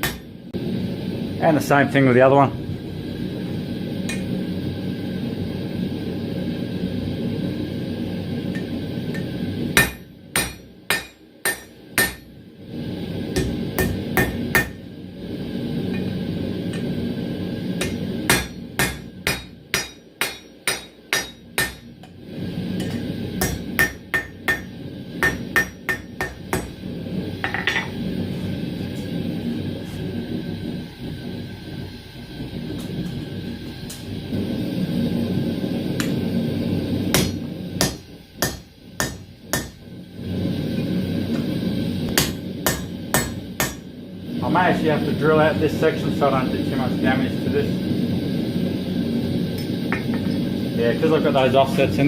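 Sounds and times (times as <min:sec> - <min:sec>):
hammer striking steel on anvil: 0:00.0 - 0:00.3, 0:04.1 - 0:04.3, 0:08.5 - 0:12.4, 0:13.4 - 0:14.8, 0:17.8 - 0:22.1, 0:22.8 - 0:26.8, 0:27.4 - 0:28.0, 0:36.0 - 0:36.2, 0:37.1 - 0:39.8, 0:42.2 - 0:43.9.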